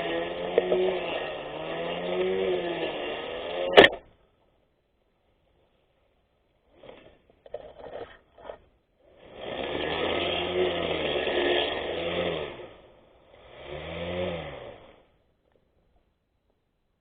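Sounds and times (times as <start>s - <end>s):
electric grass cutter motor running: 0.0s - 4.0s, 7.8s - 15.1s.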